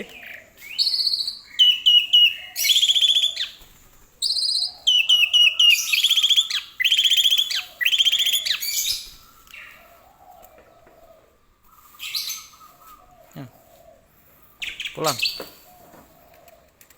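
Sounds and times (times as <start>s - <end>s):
myna singing whistles and rattles: 0.6s - 3.6s, 4.2s - 9.2s.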